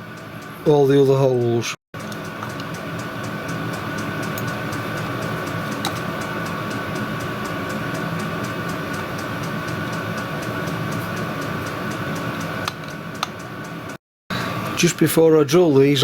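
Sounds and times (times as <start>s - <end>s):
fast even ticking: 2.0s - 14.0s
machine humming: 2.0s - 15.1s.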